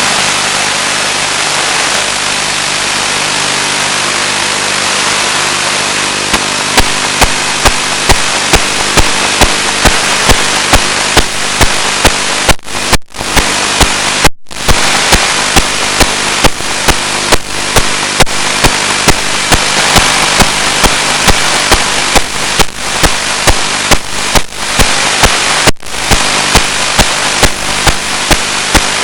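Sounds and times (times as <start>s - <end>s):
loud static hiss: 0.0s - 29.0s
regular clicks: 6.3s - 29.0s.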